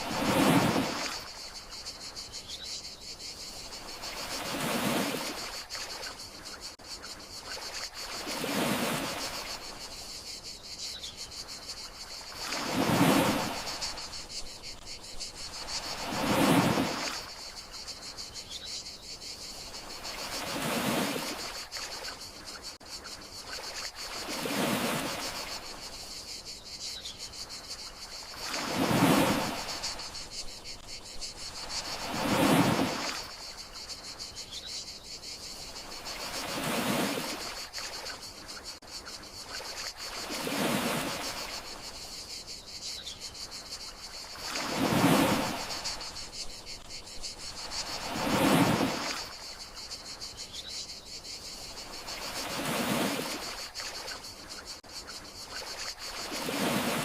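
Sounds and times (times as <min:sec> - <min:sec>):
sea waves washing in: 0:00.0 - 0:01.5, 0:03.6 - 0:06.1, 0:07.6 - 0:09.8, 0:12.2 - 0:14.3, 0:15.4 - 0:17.6, 0:19.6 - 0:22.0, 0:23.5 - 0:25.8, 0:28.2 - 0:30.8, 0:31.4 - 0:33.8, 0:35.9 - 0:38.2, 0:39.5 - 0:42.0, 0:44.2 - 0:46.4, 0:47.4 - 0:49.9, 0:51.9 - 0:54.2, 0:55.6 - 0:57.0
crickets chirping: 0:00.0 - 0:57.0.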